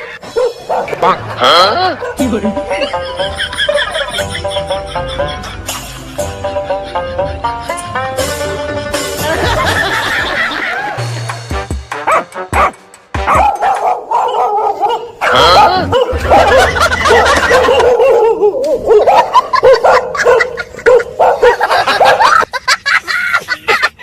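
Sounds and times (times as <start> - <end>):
dog barking and yipping: 0.3 - 1.2, 12.0 - 22.5.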